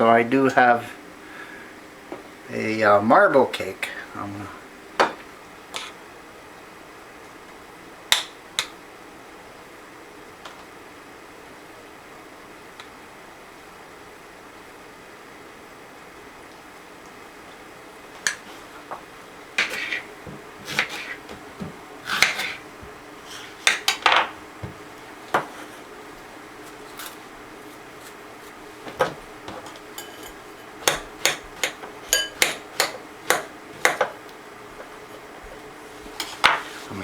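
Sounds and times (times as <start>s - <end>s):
dishes and cutlery clinking: 29.0s - 34.2s, 36.1s - 36.8s.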